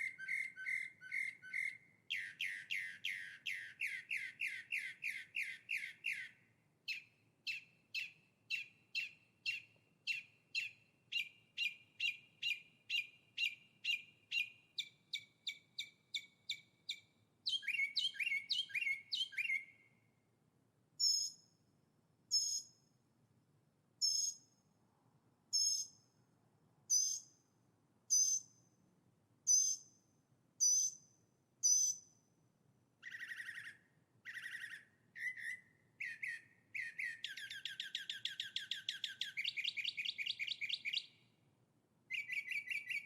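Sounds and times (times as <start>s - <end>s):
songbird whistling notes: 0.0s - 20.0s, 21.0s - 21.5s, 22.3s - 22.8s, 24.0s - 24.5s, 25.6s - 26.0s, 26.9s - 27.4s, 28.1s - 28.6s, 29.5s - 30.0s, 30.6s - 32.2s, 33.0s - 41.2s, 42.1s - 43.0s.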